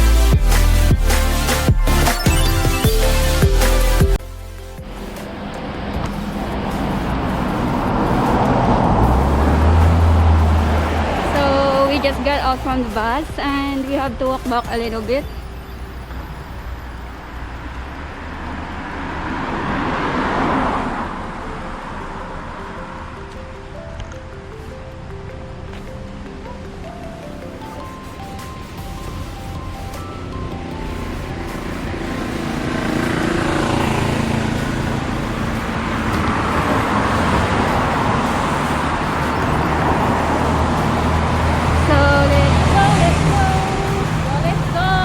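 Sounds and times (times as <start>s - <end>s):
vehicle passing by: 4.9s - 14.3s, 17.4s - 25.2s, 27.7s - 45.0s.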